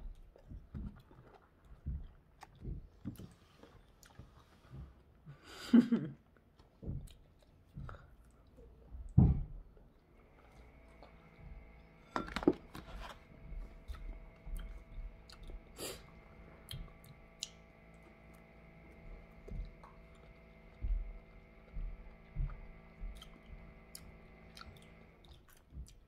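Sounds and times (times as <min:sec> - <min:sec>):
person chewing: 0:00.1 - 0:04.7, 0:06.3 - 0:08.8, 0:12.7 - 0:18.5, 0:19.6 - 0:26.0.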